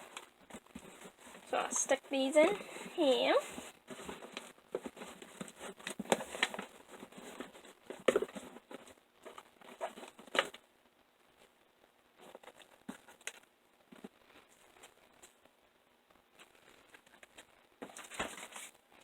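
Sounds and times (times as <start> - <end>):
packaging crinkling and rustling: 0.0 - 10.6, 16.3 - 19.0.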